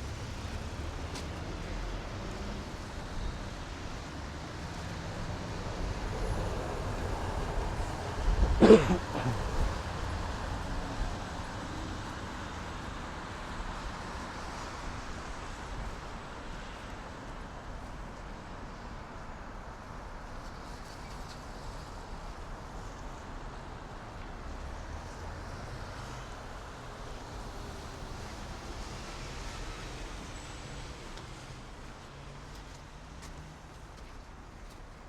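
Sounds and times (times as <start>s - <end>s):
distant traffic hum: 0.0s - 16.6s.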